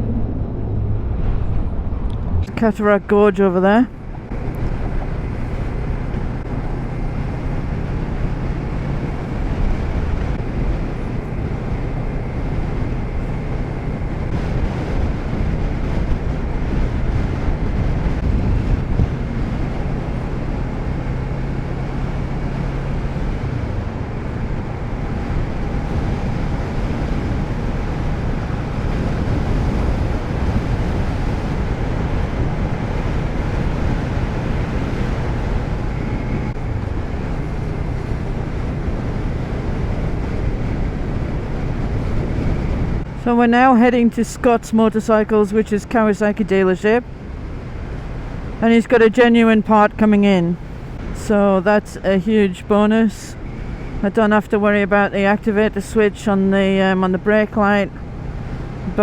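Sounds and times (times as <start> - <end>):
road noise: 0.0 - 59.0
wind rush: 0.0 - 59.0
motorcycle engine running: 3.9 - 43.3.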